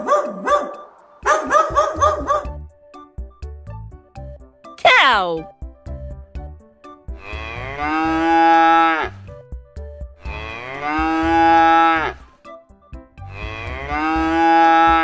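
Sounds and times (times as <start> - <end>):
light background music: 0.0 - 15.0
cow mooing: 7.2 - 9.2, 10.2 - 12.2, 13.3 - 15.0.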